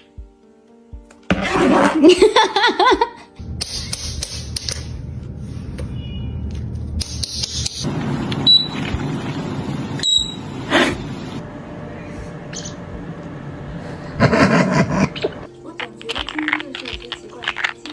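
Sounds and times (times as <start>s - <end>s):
steady low hum: 7.9s - 15.5s
parrot imitating laughter: 14.2s - 15.5s.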